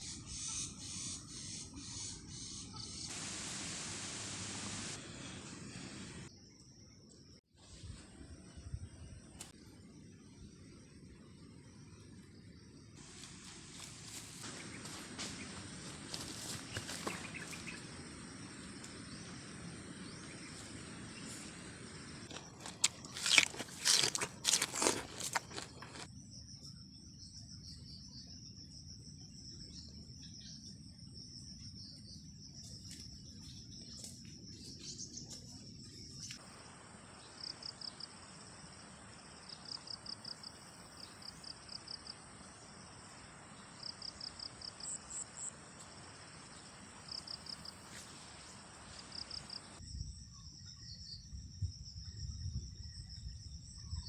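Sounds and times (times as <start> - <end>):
insects chirring: 0.0 - 54.0
clicks and crunches: 22.3 - 26.1.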